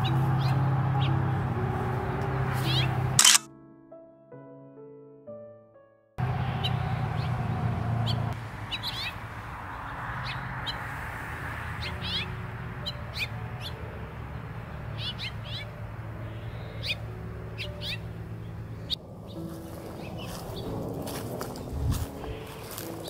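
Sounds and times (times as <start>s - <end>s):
small songbirds chirping: 6.3s - 10.9s, 11.6s - 23.0s.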